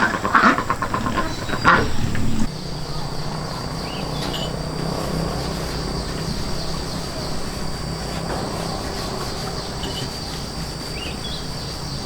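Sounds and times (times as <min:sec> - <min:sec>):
bird chirps: 0:00.0 - 0:04.8
insects droning: 0:00.0 - 0:12.0
low rumbling background: 0:00.2 - 0:04.0.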